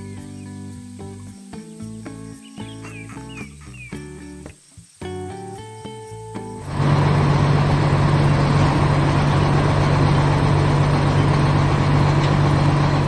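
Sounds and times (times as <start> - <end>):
music: 0.0 - 6.7
heavy engine running: 6.6 - 13.0.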